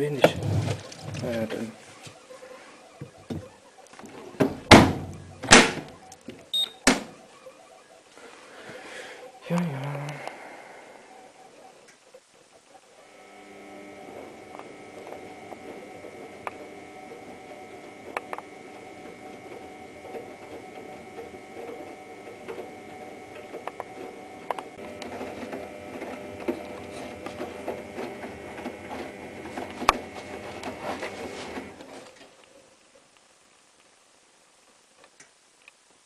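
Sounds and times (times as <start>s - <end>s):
washing machine motor whine: 12.9s - 32.0s.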